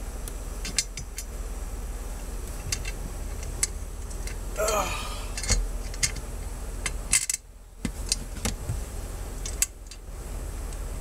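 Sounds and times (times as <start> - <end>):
steady low hum: 0.0 - 11.0
metal bolts and tools clinking: 5.3 - 6.2, 7.1 - 7.4.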